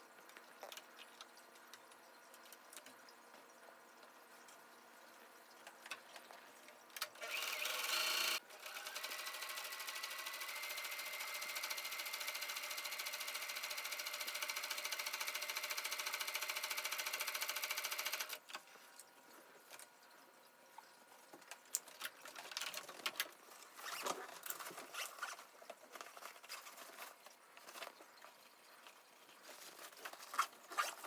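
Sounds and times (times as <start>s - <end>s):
electric sewing machine stitching: 7.0s - 18.4s.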